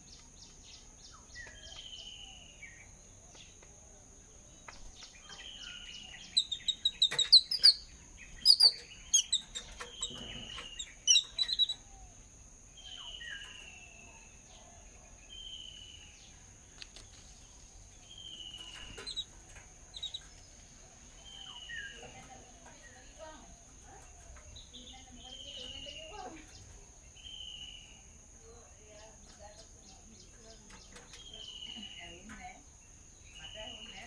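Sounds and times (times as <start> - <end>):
high-pitched insect hum: 0.0 - 34.0
sharp bird chirps: 4.8 - 12.2, 18.1 - 19.3, 19.9 - 20.3.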